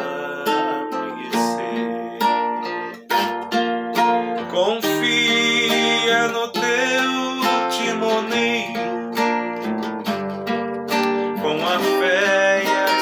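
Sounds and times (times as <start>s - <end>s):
person singing a hymn: 0.0s - 3.1s, 4.2s - 9.7s, 11.3s - 13.0s
acoustic guitar chords: 0.0s - 13.0s.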